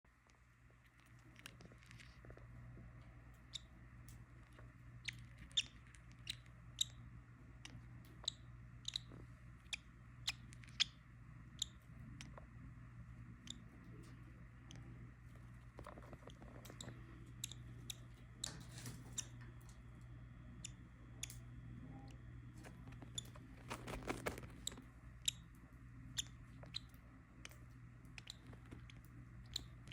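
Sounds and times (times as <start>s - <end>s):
faint low hum: 0.0s - 29.9s
lovebirds chirping: 3.1s - 29.9s.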